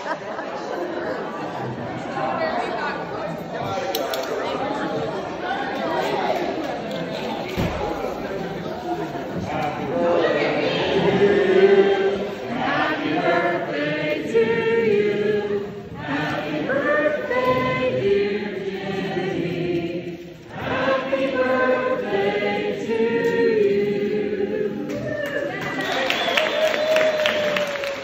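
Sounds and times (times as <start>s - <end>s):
group of voices singing: 7.5s - 25.1s.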